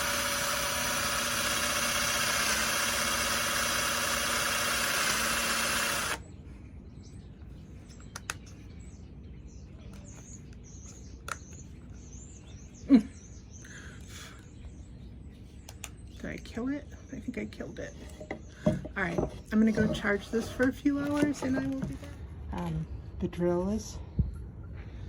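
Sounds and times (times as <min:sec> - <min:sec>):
cordless drill motor running: 0:00.0 - 0:06.2.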